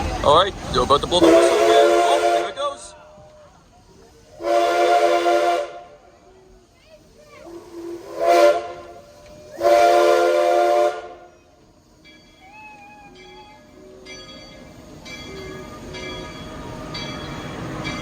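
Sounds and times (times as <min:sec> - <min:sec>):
steam locomotive whistle blasts: 0:01.2 - 0:02.8, 0:04.3 - 0:06.2, 0:07.4 - 0:11.4.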